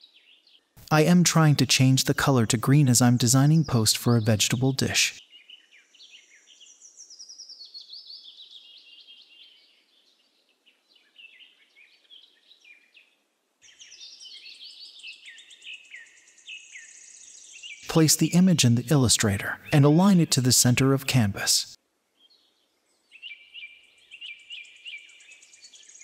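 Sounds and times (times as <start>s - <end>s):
birds chirping: 0.2s - 6.7s, 13.7s - 21.8s.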